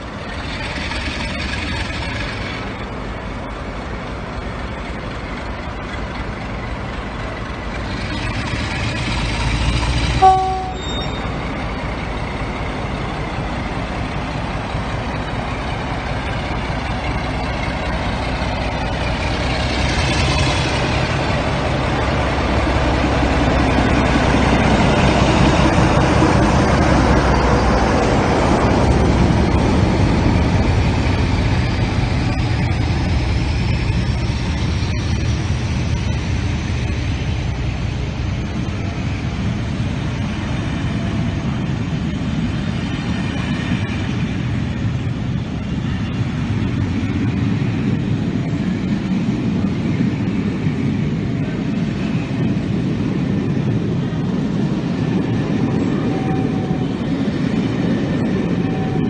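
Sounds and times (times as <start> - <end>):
diesel locomotive engine: 0.0 - 59.0
locomotive horn blast: 10.2 - 11.4.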